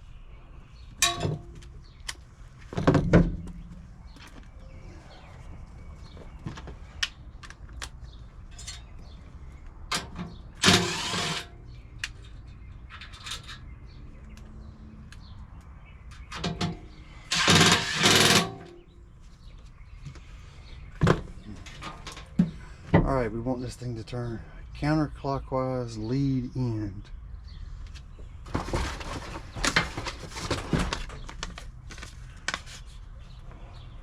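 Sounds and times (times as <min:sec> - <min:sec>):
tools clicking and knocking: 0:09.9 - 0:13.7, 0:16.1 - 0:18.8.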